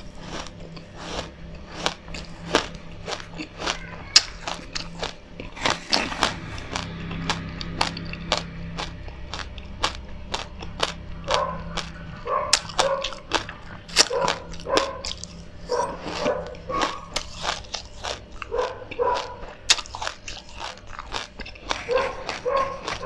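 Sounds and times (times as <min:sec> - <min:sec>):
crunchy chewing of seeds: 0:00.0 - 0:23.0
squeaky mouth sounds: 0:03.2 - 0:07.4.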